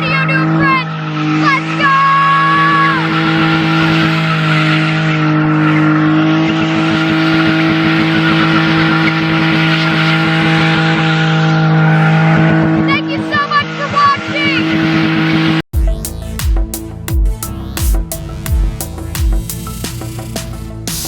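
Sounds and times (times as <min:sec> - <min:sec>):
car engine at high revs: 0:00.0 - 0:15.6
tyres squealing and skidding: 0:00.0 - 0:15.6.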